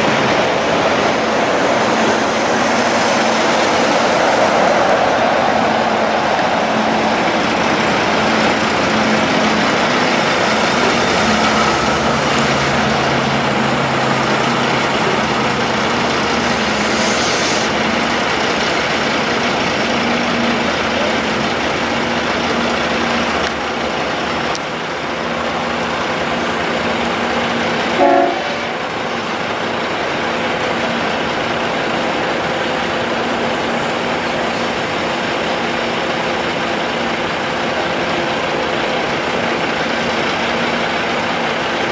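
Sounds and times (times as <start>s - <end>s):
road noise roar: 0.0s - 41.9s
truck diesel engines running: 0.0s - 41.9s
truck horn toot: 28.0s - 28.8s.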